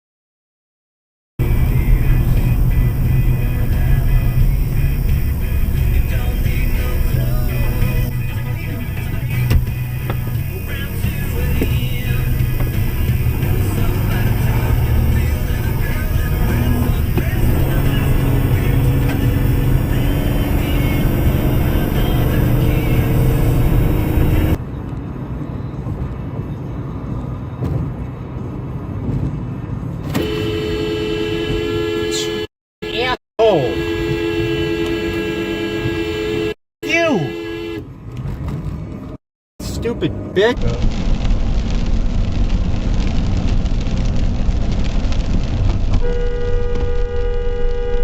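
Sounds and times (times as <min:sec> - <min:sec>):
car road and engine noise: 0:01.4 - 0:48.0
vehicle horn blast: 0:12.6 - 0:24.6, 0:30.0 - 0:37.9, 0:46.0 - 0:48.0.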